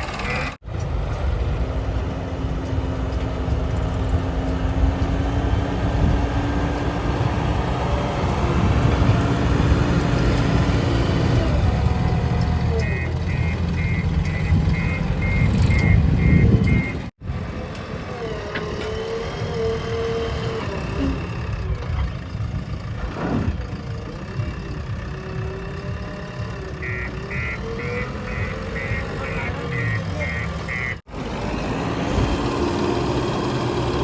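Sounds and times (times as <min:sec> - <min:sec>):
diesel machinery running: 0:00.0 - 0:34.0
reversing alarm beeping: 0:12.7 - 0:17.1.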